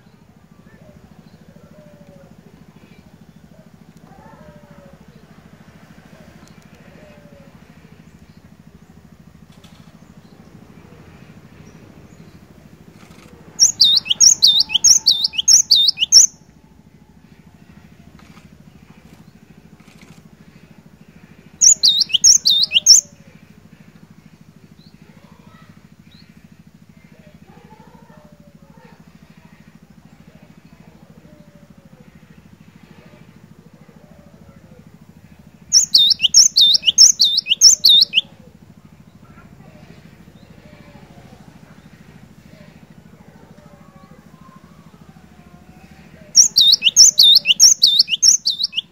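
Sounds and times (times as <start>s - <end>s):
faint low hum: 0.0s - 48.9s
bird singing: 6.3s - 16.6s, 18.2s - 32.4s, 33.0s - 48.9s
bird singing high whistles: 13.6s - 16.4s, 21.6s - 23.1s, 35.7s - 38.3s, 46.4s - 48.9s.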